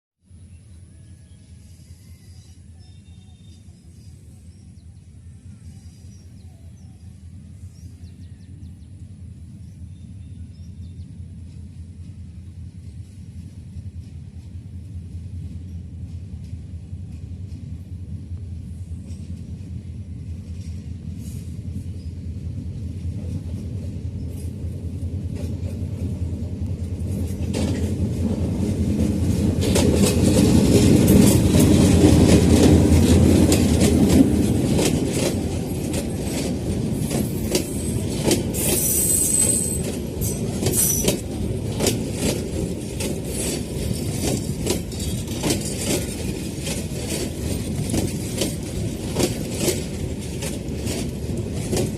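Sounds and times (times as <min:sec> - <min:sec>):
train low rumble: 0:00.2 - 0:51.9
wheels clickety-clack over joints: 0:22.8 - 0:51.9.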